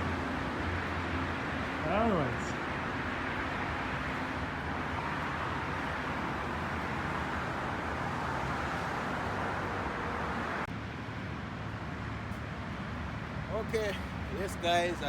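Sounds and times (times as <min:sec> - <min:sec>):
highway traffic: 0:00.0 - 0:15.0.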